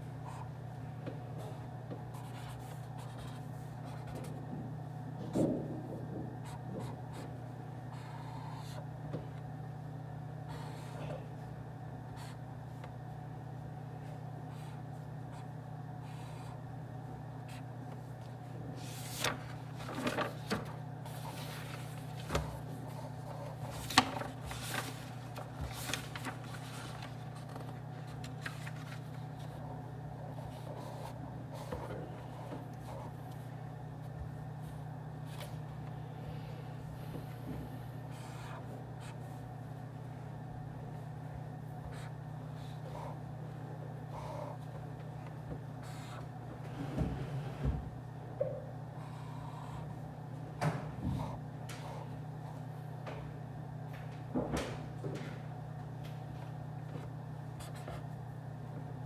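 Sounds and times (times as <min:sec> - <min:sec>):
steady low hum: 0:00.0 - 0:59.0
desk work taps and rustles: 0:19.0 - 0:29.0, 0:54.0 - 0:56.2.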